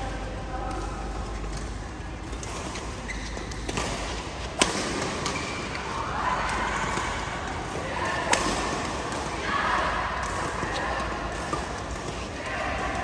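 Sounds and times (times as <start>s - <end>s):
racket hitting shuttlecock: 2.4s - 9.4s, 10.1s - 13.0s
background hubbub: 4.0s - 13.0s.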